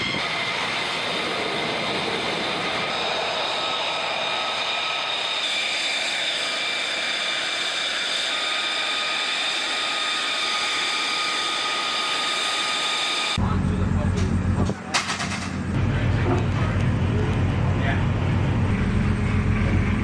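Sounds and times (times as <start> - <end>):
fighter jet engine running: 0.0 - 20.0.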